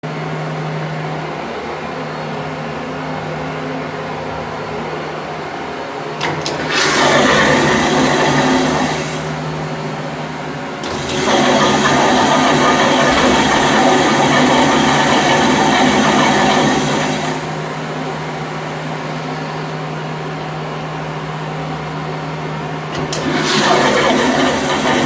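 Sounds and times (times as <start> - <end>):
steady low hum: 0.0 - 25.0
click: 6.2 - 7.2.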